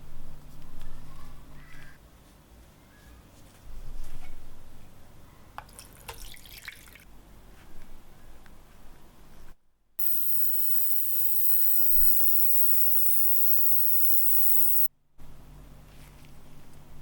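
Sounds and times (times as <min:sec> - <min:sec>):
hissing spray jet: 0:10.0 - 0:14.9
low motor hum: 0:10.0 - 0:14.9.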